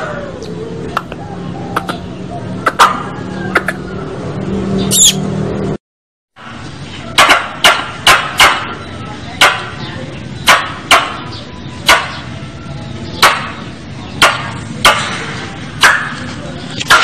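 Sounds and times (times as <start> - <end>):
squirrel chip calls: 0.4 - 4.1, 4.8 - 5.3.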